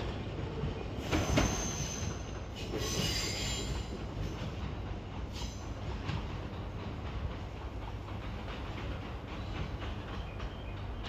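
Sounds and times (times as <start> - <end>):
train rumbling past: 0.0 - 11.0
wheel clacks over rail joints: 0.0 - 11.0.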